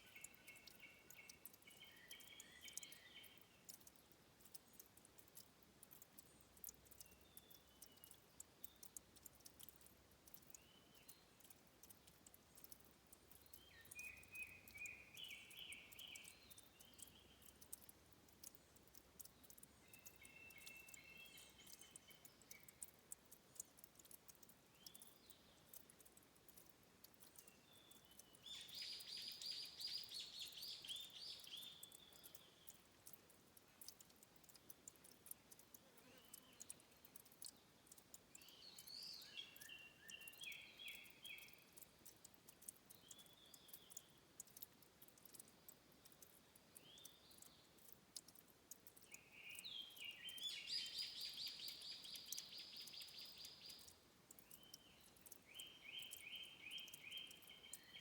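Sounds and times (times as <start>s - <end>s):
songbirds trilling: 0.0s - 4.6s
faint scattered ticks: 0.0s - 58.0s.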